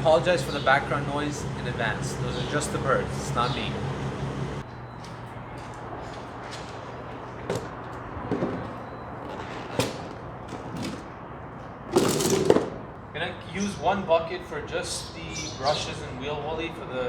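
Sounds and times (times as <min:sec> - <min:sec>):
low hum: 0:00.0 - 0:05.0
buckets clattering: 0:06.0 - 0:11.2, 0:11.9 - 0:12.9.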